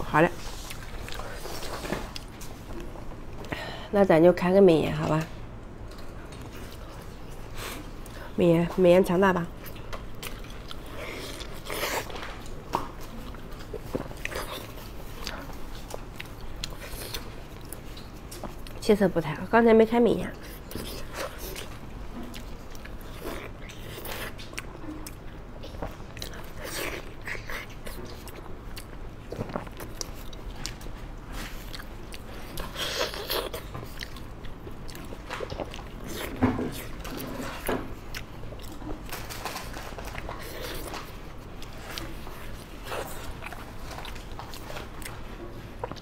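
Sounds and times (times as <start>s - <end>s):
chewing and wet mouth noises: 0.1s - 3.6s, 5.0s - 19.4s, 20.2s - 46.0s.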